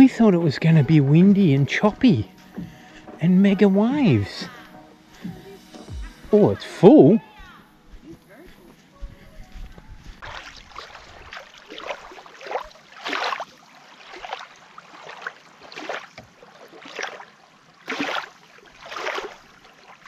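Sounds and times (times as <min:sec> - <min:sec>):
water splashing and sloshing: 0:07.8 - 0:20.0.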